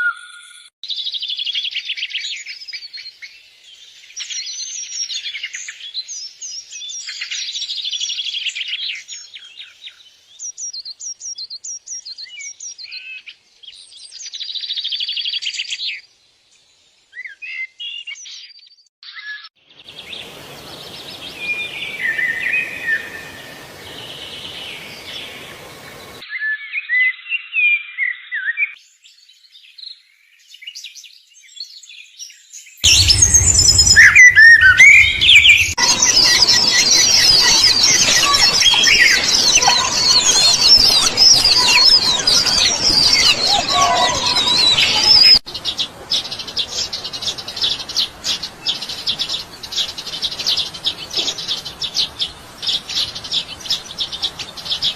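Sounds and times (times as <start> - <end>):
songbirds chirping and singing: 17.2 - 54.9.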